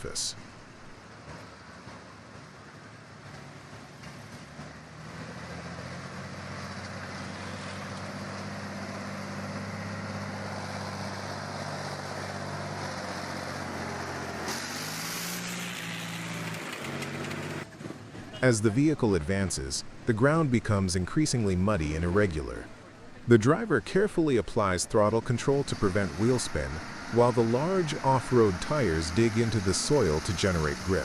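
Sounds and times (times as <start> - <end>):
off-road vehicle engine under load: 0.0 - 31.0
burst of hiss: 14.4 - 15.7.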